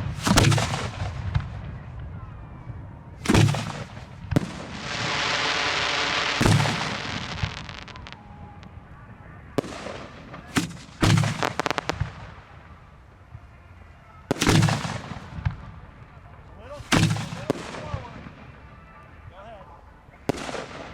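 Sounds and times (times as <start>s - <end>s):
firework booms: 0.0s - 1.8s, 3.2s - 8.8s, 9.5s - 12.6s
firework crackles: 3.2s - 8.8s, 9.6s - 12.8s
firework hissing: 4.6s - 8.2s.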